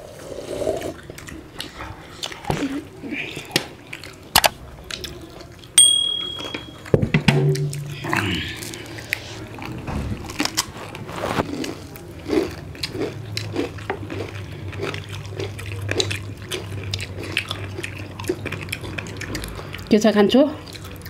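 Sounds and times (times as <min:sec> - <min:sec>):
people chewing and lip smacking: 0:00.4 - 0:05.8, 0:07.6 - 0:21.0
low hum: 0:05.8 - 0:11.6.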